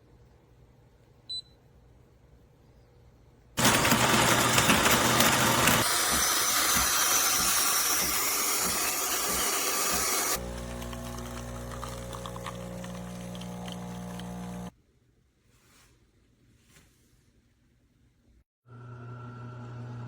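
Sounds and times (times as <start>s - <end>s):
espresso machine rushing noise: 3.6s - 14.7s.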